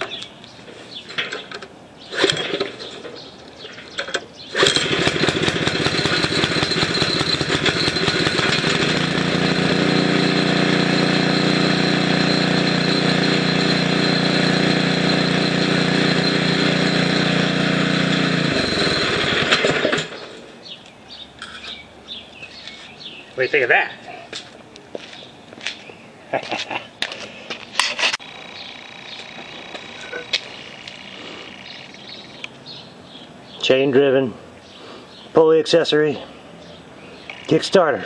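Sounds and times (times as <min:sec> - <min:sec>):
small engine running: 0:04.5 - 0:20.4, 0:28.2 - 0:32.4.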